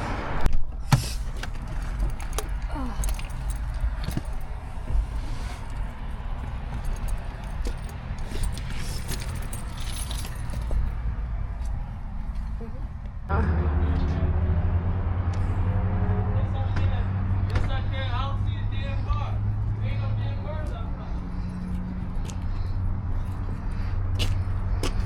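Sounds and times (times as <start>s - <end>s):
keys jangling: 1.3s - 4.6s, 5.7s - 10.9s.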